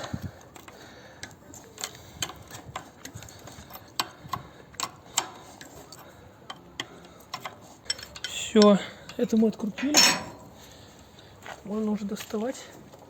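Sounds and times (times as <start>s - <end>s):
wrench clicking on metal nut: 3.8s - 10.5s.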